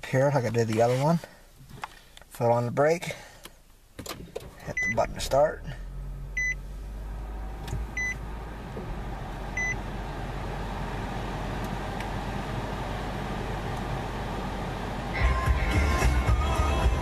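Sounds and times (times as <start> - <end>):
car engine idling: 3.1 - 17.0
car stereo music: 14.6 - 17.0.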